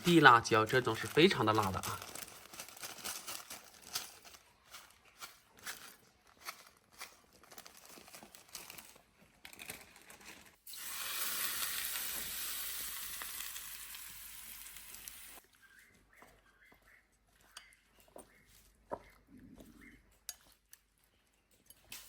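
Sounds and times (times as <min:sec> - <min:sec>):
food sizzling in hot oil: 0:10.7 - 0:15.4.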